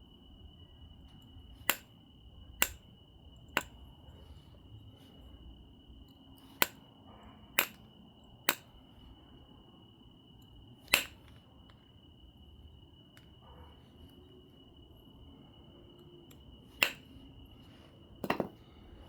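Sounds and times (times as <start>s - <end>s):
stone knapping clicks: 1.6s - 1.9s, 2.6s - 2.9s, 3.5s - 3.8s, 6.4s - 6.8s, 7.6s - 7.8s, 8.5s - 8.7s, 10.9s - 11.3s, 16.8s - 17.1s.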